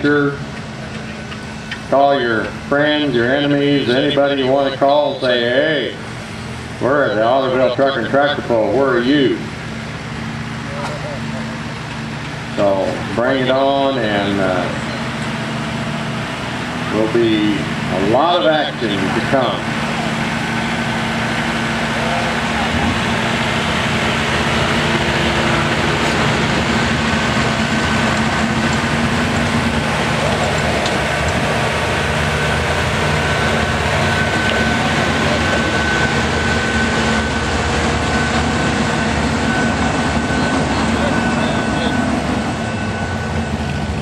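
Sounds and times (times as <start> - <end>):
high engine whine: 0.0 - 44.0
tractor engine running: 0.0 - 44.0.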